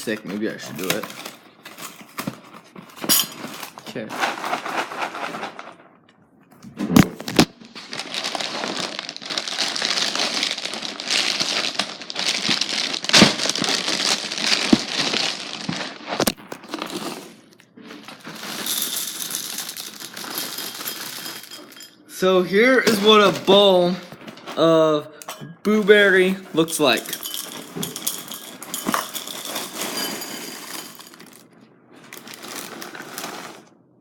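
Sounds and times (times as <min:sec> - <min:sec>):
plastic bag crinkling: 0:07.4 - 0:21.8, 0:26.8 - 0:33.8
cereal poured into bowl: 0:18.3 - 0:21.7, 0:26.8 - 0:31.4, 0:32.1 - 0:33.7.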